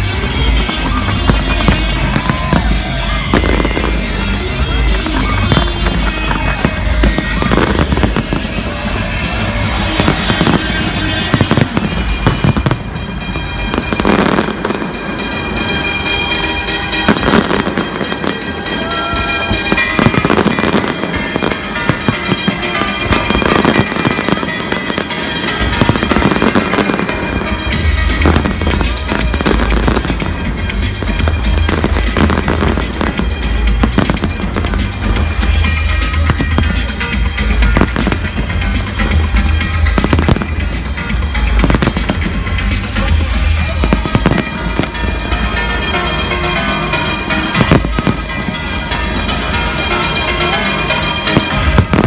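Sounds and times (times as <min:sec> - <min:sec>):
deep bass: 0:00.0 - 0:13.0, 0:27.7 - 0:44.4
fireworks bursting and crackling: 0:00.0 - 0:52.0
loud music: 0:00.0 - 0:52.0.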